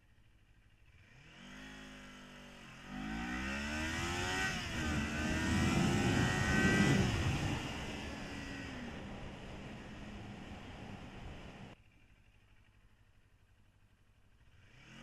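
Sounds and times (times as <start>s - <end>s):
motorcycle engine accelerating hard: 0.7s - 11.8s, 14.4s - 15.0s.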